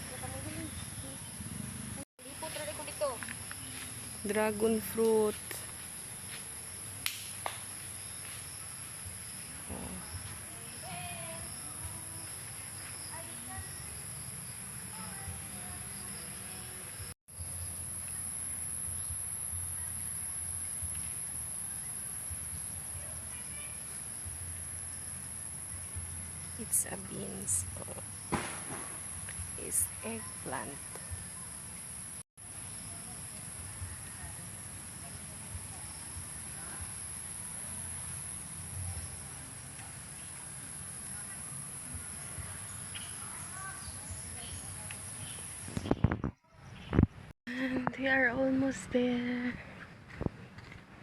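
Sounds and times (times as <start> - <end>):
insect chorus droning: 0.0 - 46.1
wind rumble on microphone: 45.5 - 51.0.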